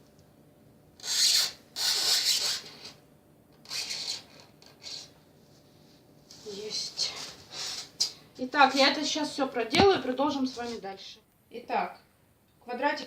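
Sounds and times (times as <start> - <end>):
scratching on polystyrene foam: 1.0 - 3.0, 3.6 - 5.2.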